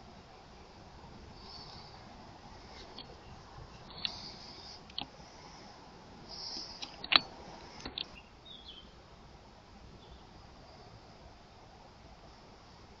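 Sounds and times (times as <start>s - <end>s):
faint steady hiss: 0.0s - 13.0s
sharp clicks and knocks: 6.6s - 8.2s.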